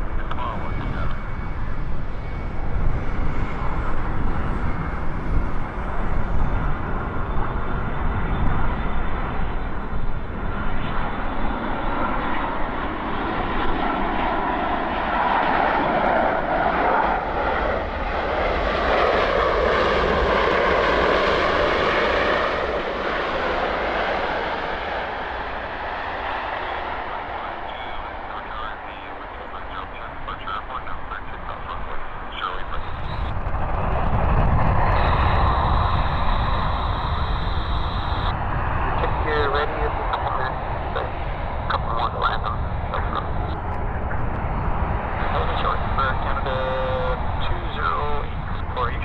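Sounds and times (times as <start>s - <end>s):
wind rumble on microphone: 0.0s - 13.0s, 32.1s - 49.0s
jet plane engine noise: 0.0s - 49.0s.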